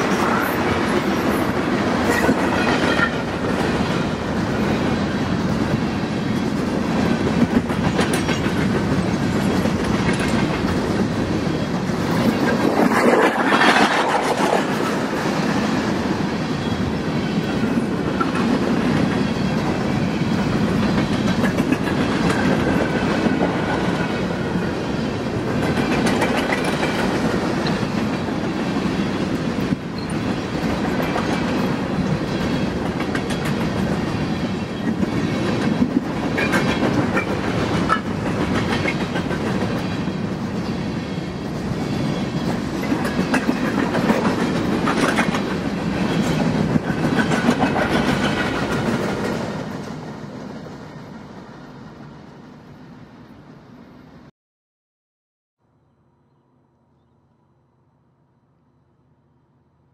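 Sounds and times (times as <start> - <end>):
clickety-clack over rail joints: 0.0 - 16.0, 17.5 - 24.6, 25.3 - 40.7, 41.5 - 50.9
train wheels rumbling on rail: 0.0 - 53.0.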